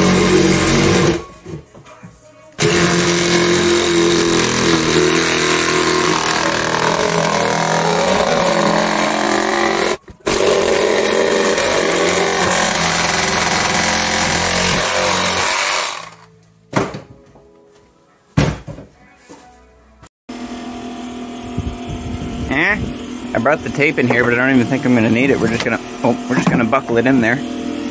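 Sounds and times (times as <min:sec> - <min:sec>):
power saw cutting: 0:00.0 - 0:01.3, 0:02.6 - 0:16.3, 0:21.2 - 0:27.9.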